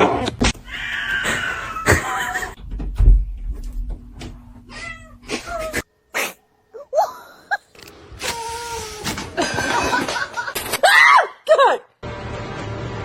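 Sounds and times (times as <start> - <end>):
cats meowing: 0.6 - 2.4.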